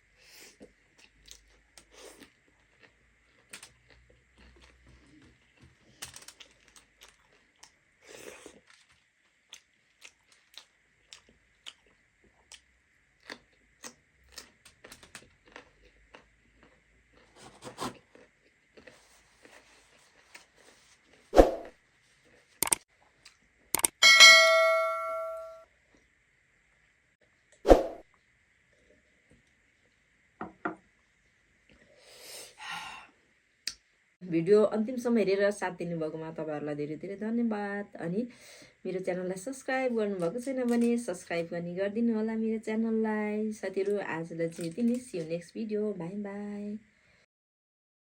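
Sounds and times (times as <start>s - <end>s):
person chewing crunchy food: 0.4s - 21.3s.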